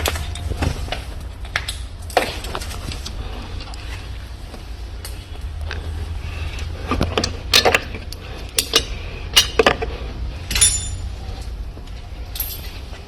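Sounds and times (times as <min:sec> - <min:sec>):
steady low hum: 0:00.0 - 0:13.0
metal tools clinking: 0:06.6 - 0:11.5, 0:12.2 - 0:13.0.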